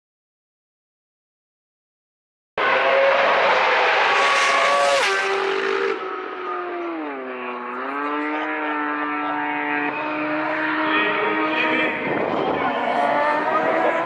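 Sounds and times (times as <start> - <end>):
racing motorcycle engines: 2.6 - 14.0.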